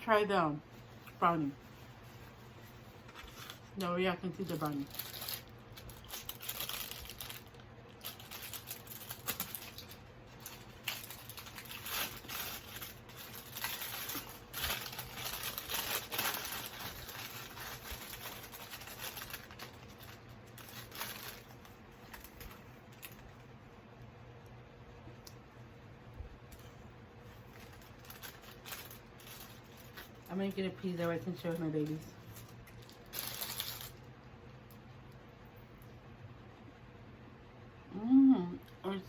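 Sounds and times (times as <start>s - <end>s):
plastic wrapper crinkling: 0.9s - 23.5s, 26.5s - 34.1s.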